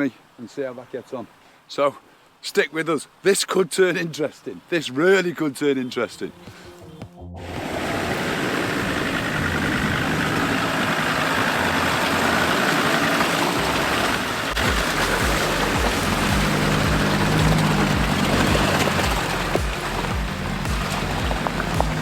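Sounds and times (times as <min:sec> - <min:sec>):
off-road vehicle engine running: 0:06.6 - 0:22.0
low regular thudding: 0:14.6 - 0:22.0.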